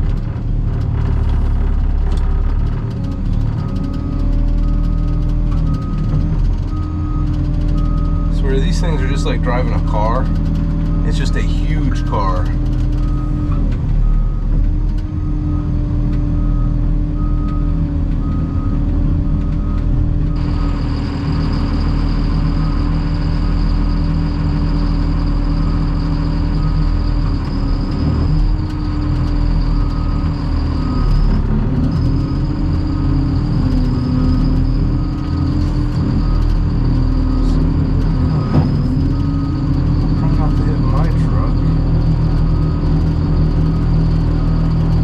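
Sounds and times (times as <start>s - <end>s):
dump truck diesel engine: 0.0s - 45.0s
warning beeper: 8.0s - 10.4s, 11.0s - 13.4s, 20.3s - 44.7s.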